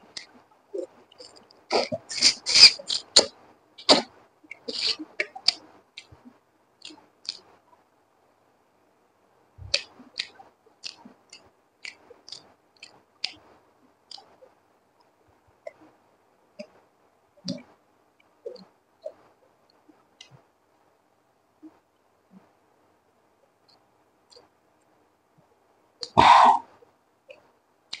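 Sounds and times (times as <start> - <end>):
mouth clicks and smacks eating: 0.1 - 7.8, 9.6 - 15.9, 16.5 - 20.5, 23.6 - 25.0, 26.0 - 28.0.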